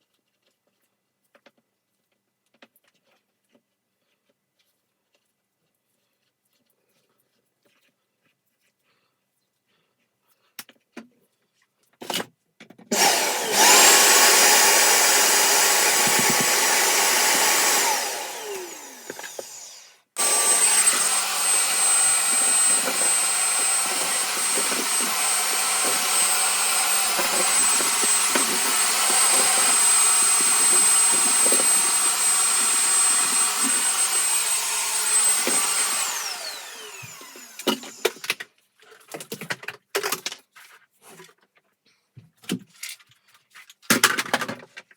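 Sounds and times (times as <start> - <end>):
vacuum cleaner running: 12.9 - 38.4.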